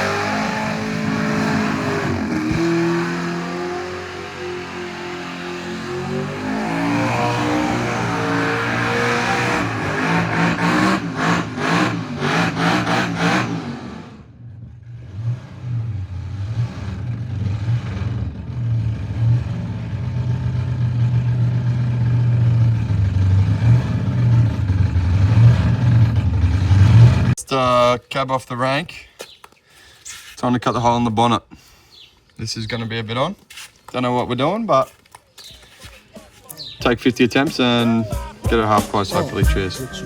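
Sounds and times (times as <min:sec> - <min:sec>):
supercharged car engine revving: 0:00.0 - 0:27.4.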